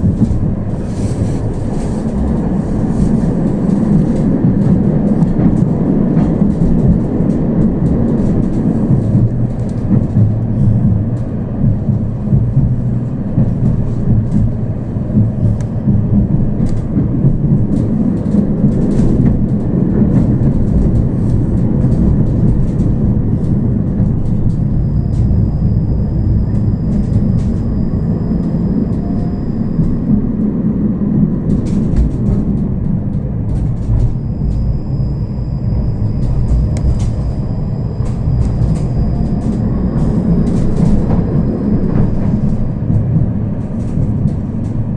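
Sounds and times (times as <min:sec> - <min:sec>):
tram wheels rumbling on rails: 0:00.0 - 0:44.9
thin high whine: 0:24.6 - 0:30.2, 0:34.0 - 0:42.8.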